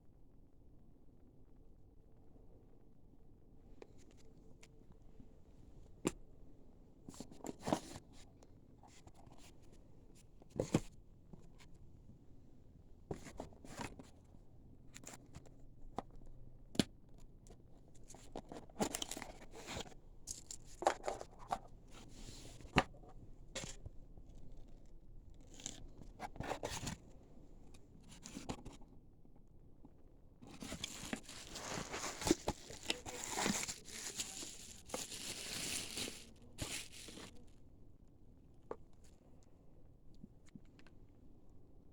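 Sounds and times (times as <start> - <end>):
packaging rustling and crinkling: 30.4 - 37.4.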